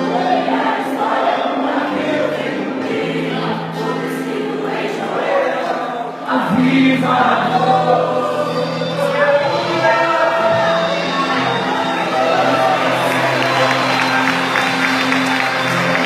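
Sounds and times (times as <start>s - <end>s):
group of voices singing: 0.0s - 16.0s
sustained keyboard chords: 0.0s - 16.0s.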